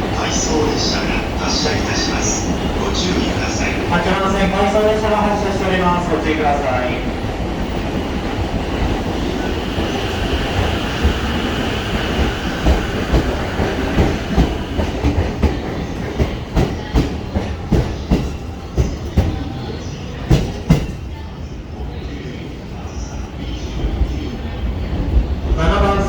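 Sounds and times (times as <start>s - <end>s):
electric train whine: 0.0s - 17.1s
train wheels clacking on rail joints: 11.9s - 19.5s.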